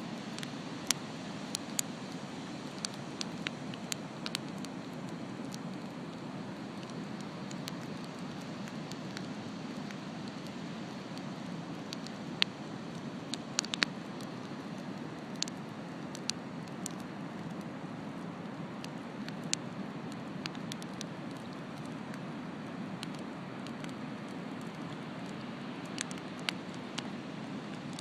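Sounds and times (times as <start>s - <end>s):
bonfire crackling and popping: 0.3s - 28.0s.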